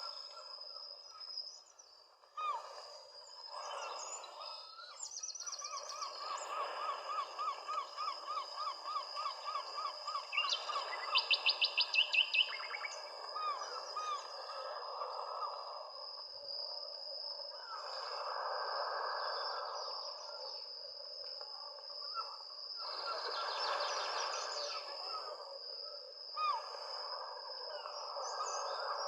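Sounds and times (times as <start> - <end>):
wild birds calling: 2.3 - 15.7.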